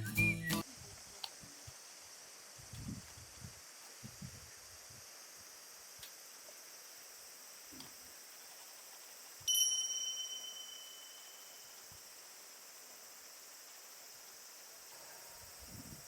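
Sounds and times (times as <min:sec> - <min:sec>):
faint steady hiss: 0:00.0 - 0:16.0
light metallic ding: 0:09.5 - 0:11.6.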